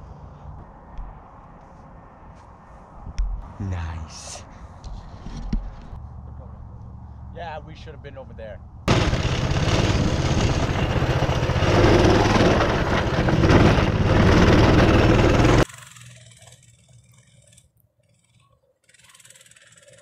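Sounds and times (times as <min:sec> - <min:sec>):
small engine running hard: 0:08.9 - 0:17.0.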